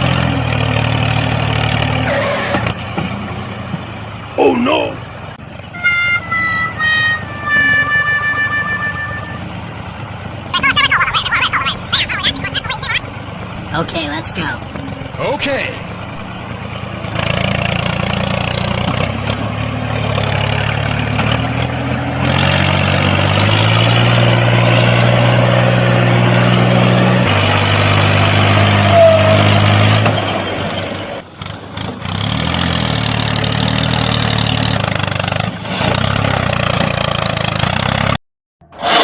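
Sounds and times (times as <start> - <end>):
tractor engine running: 0.0 - 38.2.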